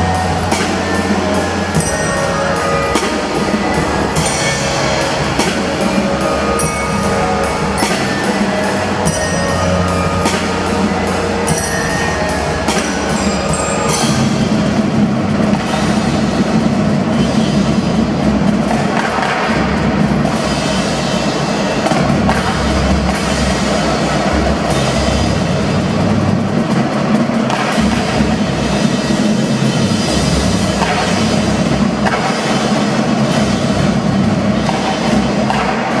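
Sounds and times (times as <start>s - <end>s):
sustained melodic tones: 0.0s - 17.1s
marching drums: 0.0s - 36.0s.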